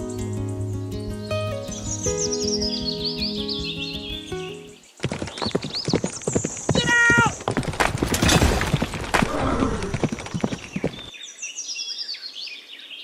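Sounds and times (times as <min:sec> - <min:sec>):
hoofbeats clip-clopping: 0:04.9 - 0:11.1.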